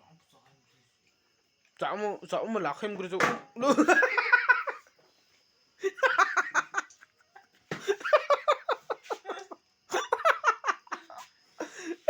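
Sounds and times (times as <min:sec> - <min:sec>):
person laughing and giggling: 0:03.6 - 0:04.9, 0:05.8 - 0:12.0.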